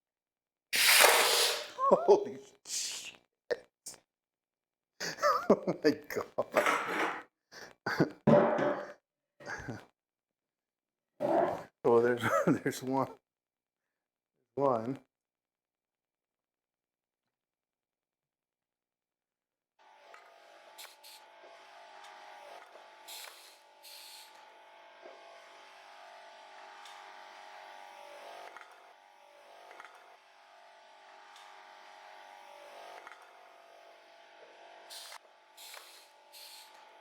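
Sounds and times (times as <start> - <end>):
exhaust air hissing: 0.8 - 1.8, 34.9 - 36.8.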